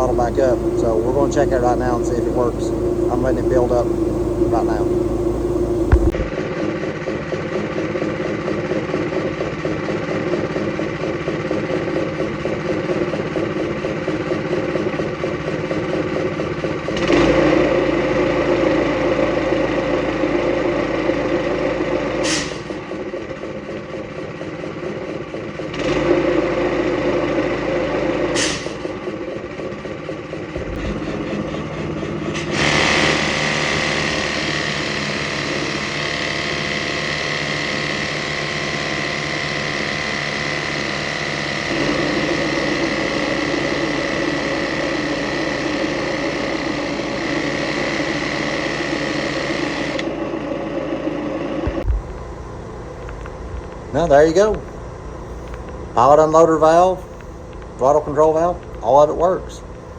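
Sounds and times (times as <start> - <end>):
whistling hiss of air: 0.0 - 6.1
gas engine driving air compressor: 0.0 - 59.9
sharp air pops: 22.2 - 22.9, 28.3 - 29.0.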